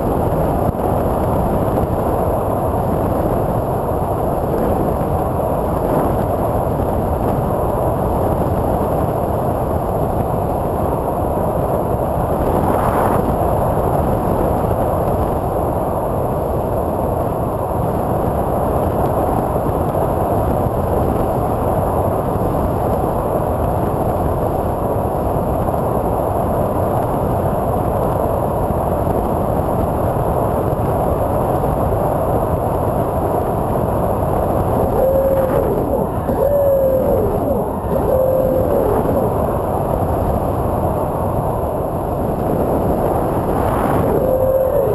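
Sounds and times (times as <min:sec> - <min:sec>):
airflow rushing: 0:34.9 - 0:39.7, 0:43.6 - 0:44.9
electric propeller noise: 0:34.9 - 0:39.7, 0:43.7 - 0:44.9.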